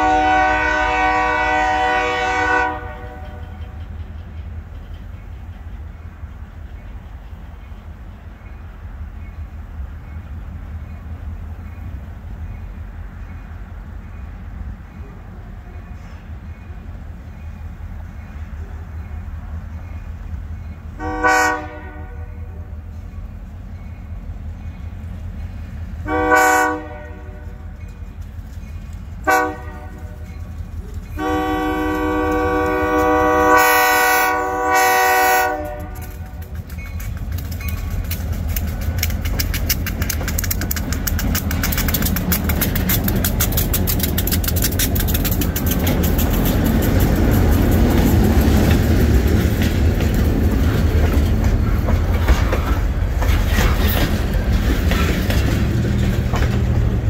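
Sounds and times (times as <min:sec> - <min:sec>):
locomotive air horn blasts: 0:00.0 - 0:03.6, 0:21.0 - 0:22.7, 0:26.0 - 0:27.7, 0:29.2 - 0:30.3, 0:31.1 - 0:36.4
low engine rumble: 0:00.0 - 0:57.0
wheels clattering on rail: 0:00.0 - 0:57.0.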